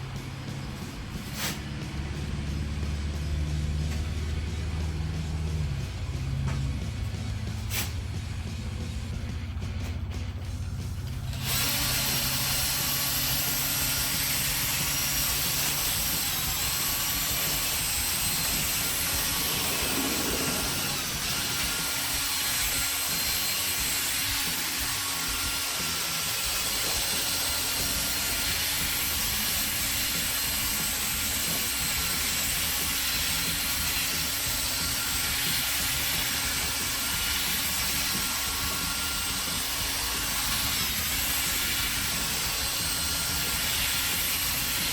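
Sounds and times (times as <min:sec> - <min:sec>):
electric drill sanding plastic: 0:11.2 - 0:44.9.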